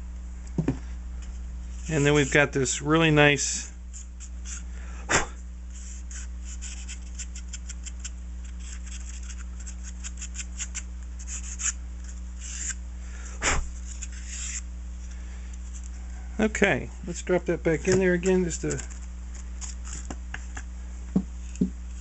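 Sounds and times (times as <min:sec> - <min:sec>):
hands rubbing foam parts: 0:01.7 - 0:02.6, 0:05.7 - 0:12.8, 0:17.8 - 0:22.0.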